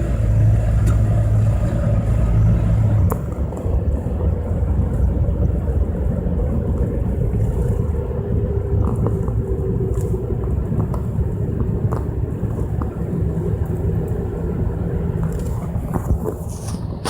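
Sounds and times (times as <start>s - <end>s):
car engine and road noise: 0.0s - 17.0s
crackling ticks in recording: 0.0s - 17.0s.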